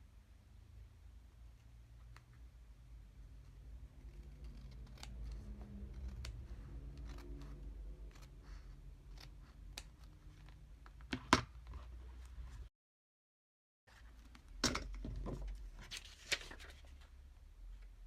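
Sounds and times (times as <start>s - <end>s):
scissors snipping paper: 3.8s - 10.6s
paper rustling: 15.7s - 17.1s.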